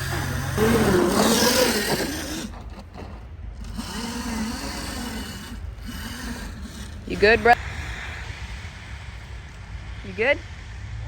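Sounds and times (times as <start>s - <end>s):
dirt bike motor revving: 0.0s - 8.2s.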